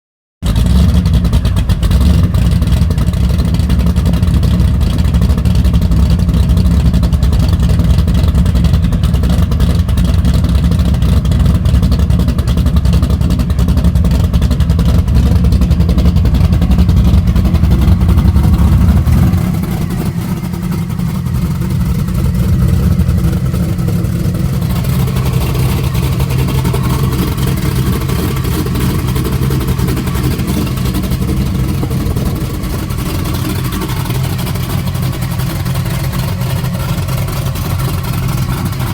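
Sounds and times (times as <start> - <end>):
car engine idling: 0.4 - 38.9.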